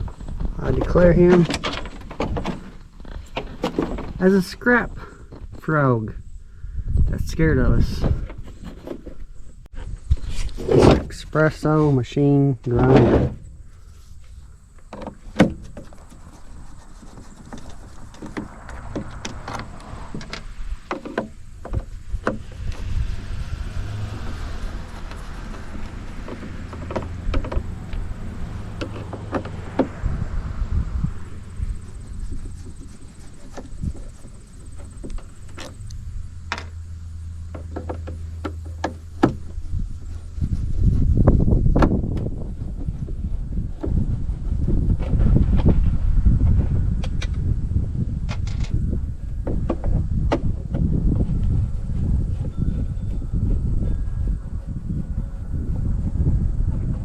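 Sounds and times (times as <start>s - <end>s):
hard parts clicking and knocking: 0.0s - 5.7s, 17.1s - 22.9s, 24.7s - 30.0s, 33.3s - 36.8s, 37.4s - 39.6s
low rumble: 17.8s - 57.0s.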